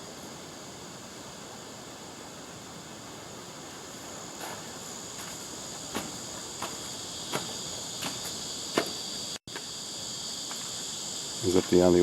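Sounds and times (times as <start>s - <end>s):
crickets chirping: 0.0s - 12.0s
footsteps: 3.9s - 9.7s.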